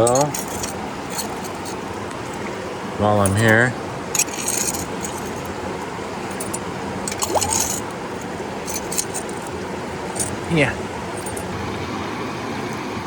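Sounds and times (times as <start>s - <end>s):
metal tool scraping stone and gravel: 0.0s - 2.4s, 3.2s - 10.4s
river rushing: 0.0s - 13.0s.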